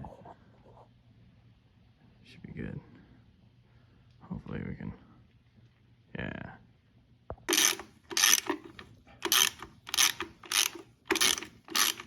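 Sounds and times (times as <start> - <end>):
ratchet wrench ratcheting: 7.5 - 12.0.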